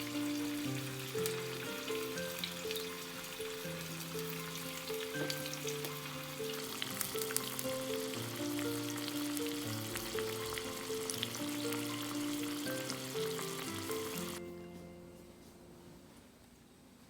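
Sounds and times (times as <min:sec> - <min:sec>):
oil sizzling and popping: 0:00.0 - 0:14.4
slow background music: 0:00.0 - 0:17.0.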